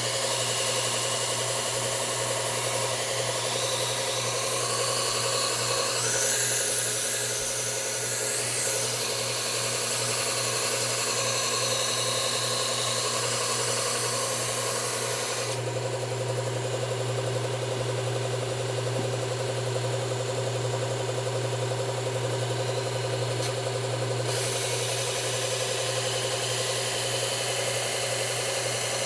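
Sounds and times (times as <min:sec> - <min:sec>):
belt sharpener motor humming: 0:00.0 - 0:19.6, 0:21.5 - 0:29.0
steel blade grinding on belt: 0:02.2 - 0:15.6, 0:24.2 - 0:26.9.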